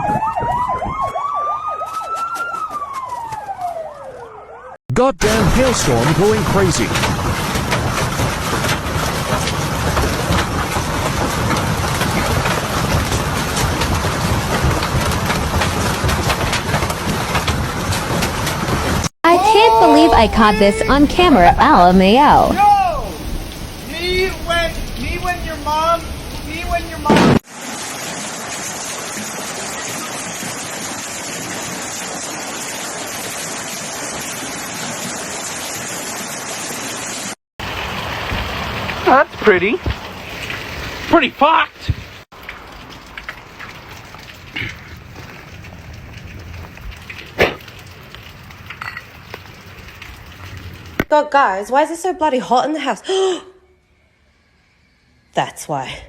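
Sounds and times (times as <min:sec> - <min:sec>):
heavy hail clattering: 0:05.2 - 0:19.1, 0:19.8 - 0:27.4, 0:37.6 - 0:51.1.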